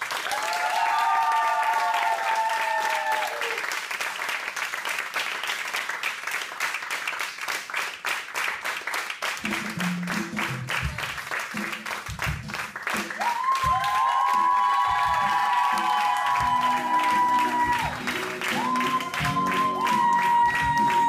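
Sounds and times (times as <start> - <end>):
audience applauding: 0.0 - 21.0
folk dance music: 9.4 - 21.0.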